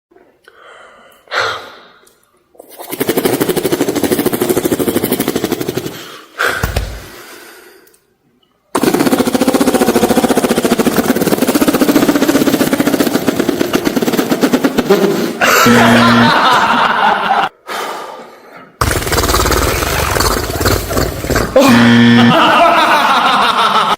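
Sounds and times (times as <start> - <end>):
breathy vocal sounds: 0.3 - 2.9
person beatboxing a helicopter: 2.6 - 7.2, 8.8 - 16.4, 18.8 - 22.0.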